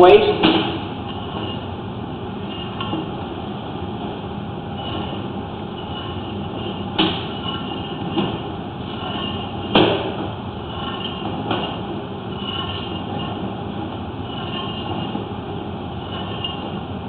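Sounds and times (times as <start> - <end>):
cable scraping through pipe: 1.1 - 1.7, 4.7 - 13.6, 14.2 - 15.3, 15.9 - 16.9.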